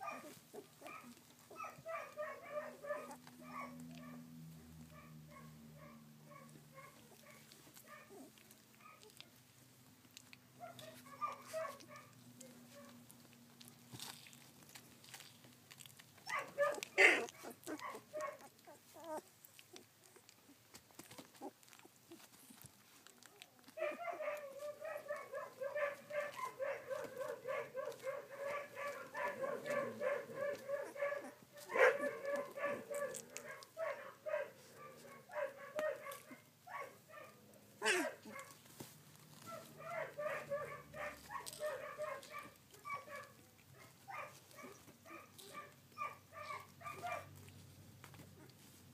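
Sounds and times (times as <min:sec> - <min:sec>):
puppies whining and squealing: 0:16.2 - 0:22.7, 0:23.3 - 0:33.5, 0:39.3 - 0:43.3, 0:44.1 - 0:47.2.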